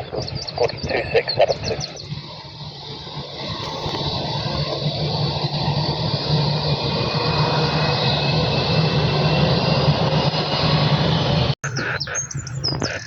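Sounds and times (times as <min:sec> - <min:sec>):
aircraft engines running: 0:00.0 - 0:13.0
short high bird chirps: 0:11.6 - 0:13.0.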